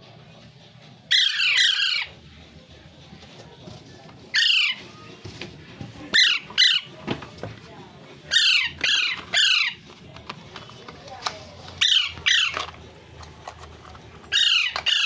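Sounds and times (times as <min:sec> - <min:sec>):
parrot squawking: 0:01.1 - 0:02.3, 0:04.3 - 0:05.1, 0:06.1 - 0:07.0, 0:08.2 - 0:09.8, 0:11.8 - 0:12.8, 0:14.2 - 0:15.0.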